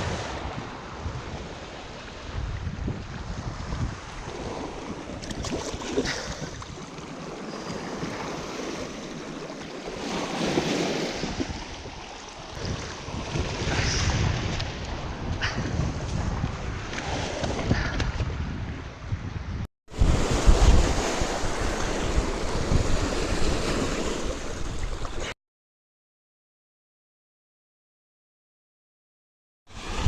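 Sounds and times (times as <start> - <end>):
wind buffeting microphone: 0.0 - 8.5, 10.0 - 25.3
small waves on choppy water: 0.0 - 25.4, 29.7 - 30.0.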